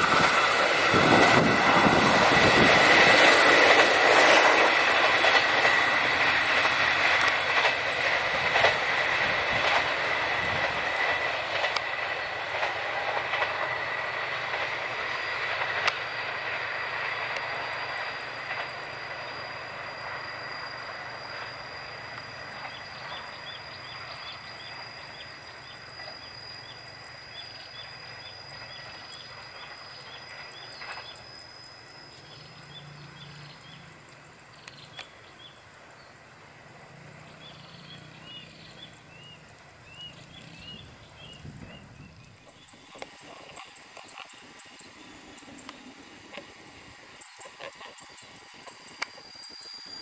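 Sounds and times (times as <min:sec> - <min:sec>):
receding train rail noise: 0:00.0 - 0:50.0.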